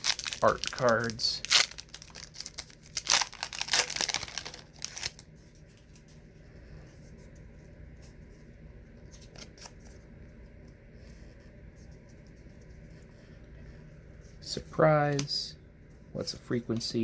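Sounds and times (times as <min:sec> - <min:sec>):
wrapper tearing and crinkling: 0:00.0 - 0:05.3
cards ticking and rustling: 0:00.0 - 0:06.1.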